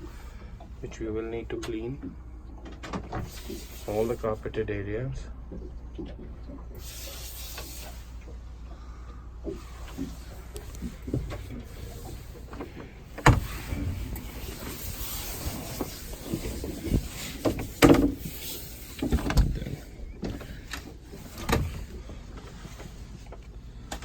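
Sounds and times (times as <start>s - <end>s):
low steady hum: 0.0s - 24.0s
faint hiss: 3.2s - 4.6s, 6.8s - 8.2s.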